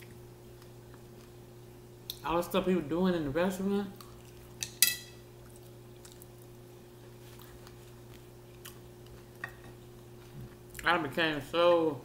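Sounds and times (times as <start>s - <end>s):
steady low hum: 0.0s - 12.0s
quiet chewing: 3.9s - 4.6s, 5.4s - 10.9s.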